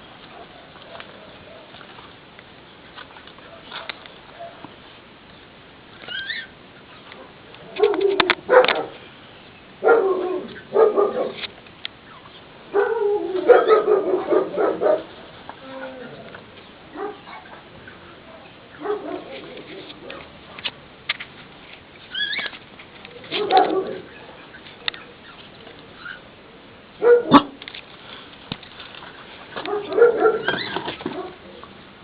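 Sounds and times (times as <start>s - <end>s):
dog barking: 7.2s - 9.0s, 9.8s - 11.4s, 12.7s - 15.1s, 16.9s - 17.6s, 18.2s - 19.4s, 23.3s - 24.1s, 27.0s - 27.6s, 29.6s - 31.4s.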